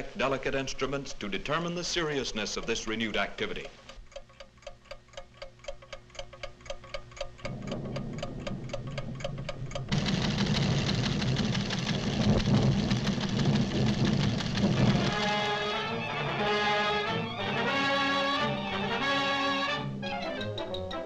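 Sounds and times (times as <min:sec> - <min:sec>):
instruments ticking rapidly: 0:00.3 - 0:16.2
low hum: 0:07.0 - 0:20.1
loud dense rumble: 0:07.5 - 0:17.7
orchestral music: 0:14.9 - 0:21.0.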